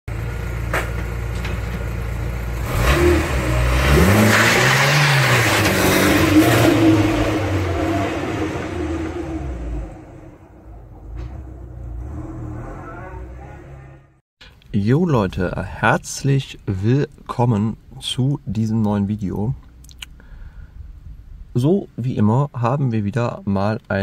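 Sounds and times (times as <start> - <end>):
car engine revving: 2.2 - 14.2.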